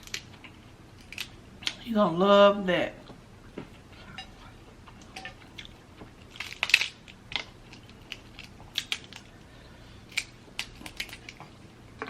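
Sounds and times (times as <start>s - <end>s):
crab shells cracking: 0.0s - 1.8s, 4.9s - 12.0s.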